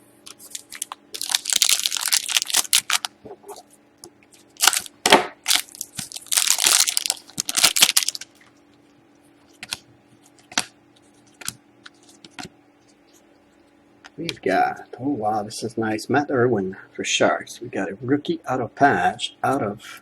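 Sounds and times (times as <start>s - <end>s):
card wrapper crinkling: 0.3s - 3.2s, 4.4s - 8.4s.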